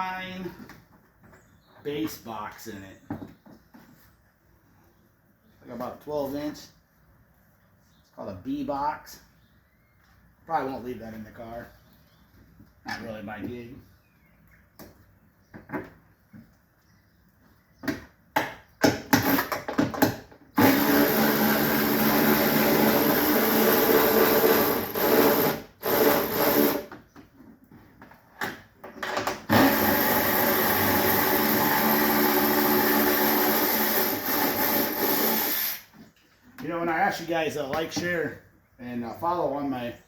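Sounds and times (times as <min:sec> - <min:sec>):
electric power tool running: 0:20.6 - 0:26.9, 0:29.5 - 0:35.9.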